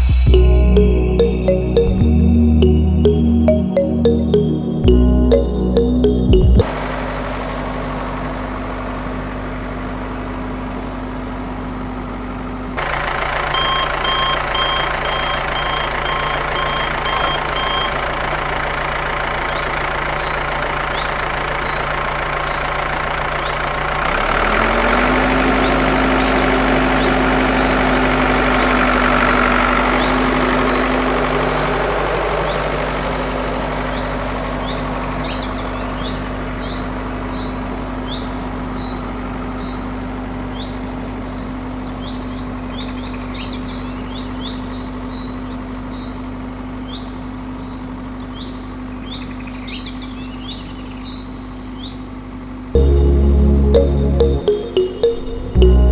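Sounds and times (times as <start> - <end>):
vehicle engine humming: 0.2 - 43.1, 52.8 - 55.9
reversing beeper: 0.3 - 6.7, 13.5 - 18.2, 52.8 - 55.9
birds chirping: 13.0 - 23.7, 25.4 - 52.0.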